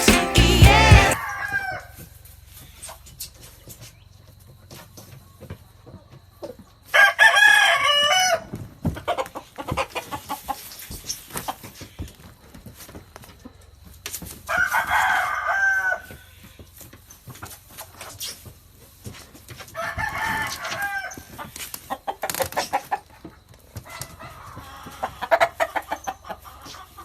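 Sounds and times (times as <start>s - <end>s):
rooster crowing: 14.5s - 16.1s, 19.8s - 21.2s.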